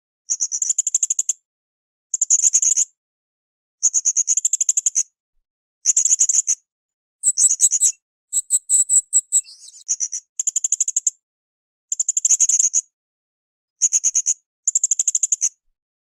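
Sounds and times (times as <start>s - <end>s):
parrot high-pitched ticking song: 7.2s - 9.9s.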